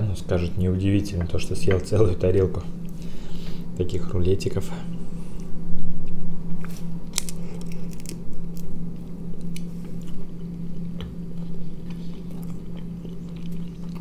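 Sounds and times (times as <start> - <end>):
steady low hum: 0.0 - 14.0
biting and chewing flatbread: 6.0 - 14.0.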